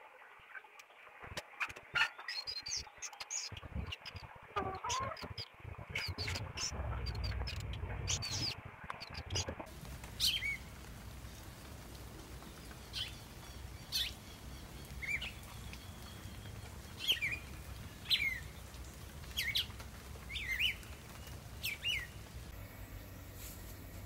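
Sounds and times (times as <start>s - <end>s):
bird high descending calls: 2.1s - 7.3s.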